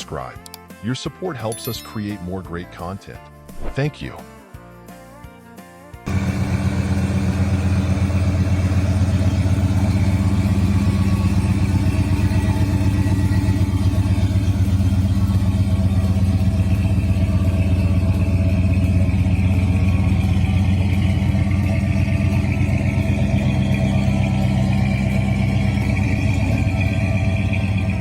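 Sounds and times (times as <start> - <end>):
car engine idling: 6.1 - 28.0.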